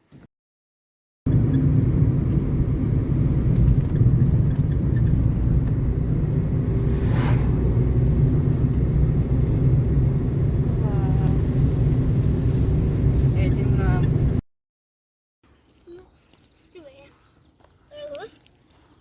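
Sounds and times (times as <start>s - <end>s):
car road and engine rumble: 1.3s - 14.4s.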